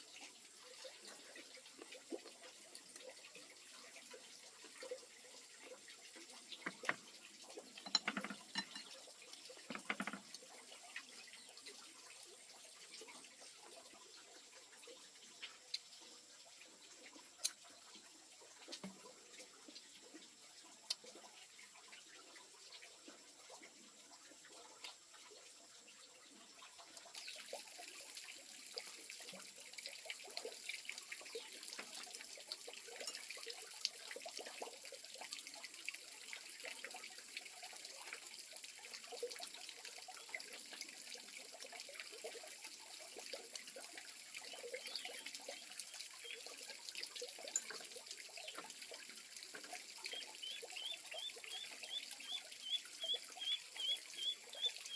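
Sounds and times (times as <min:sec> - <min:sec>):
water trickling and splashing: 0:00.0 - 0:54.9
small clicks and knocks: 0:06.5 - 0:10.6.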